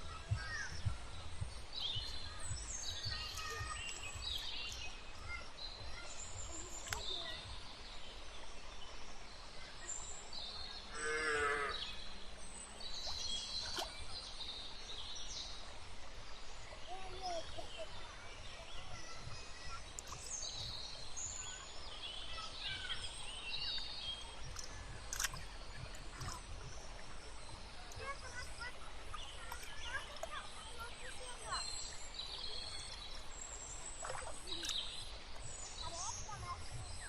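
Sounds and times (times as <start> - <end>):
small birds chirping: 0.0 - 37.0
sharp clicks: 24.5 - 25.4.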